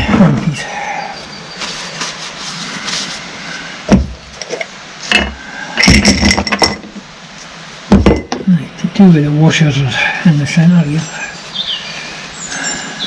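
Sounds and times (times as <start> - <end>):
metal parts knocking on bench: 3.9 - 7.0, 7.9 - 8.5
metal clatter with ringing: 5.1 - 6.9.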